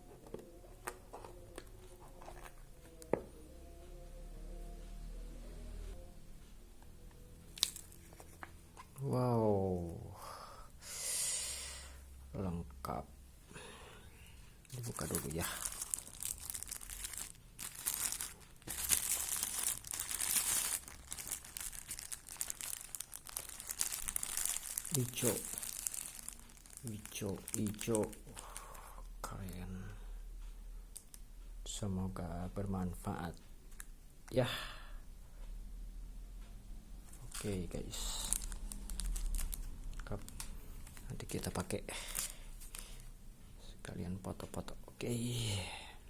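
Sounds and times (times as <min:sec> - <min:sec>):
plastic packaging crinkling and tearing: 0:07.6 - 0:08.4, 0:14.7 - 0:28.5, 0:37.2 - 0:43.0.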